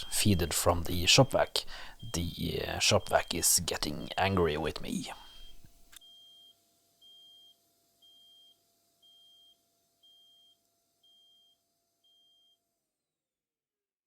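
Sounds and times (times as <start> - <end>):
faint hum: 0.0 - 5.8.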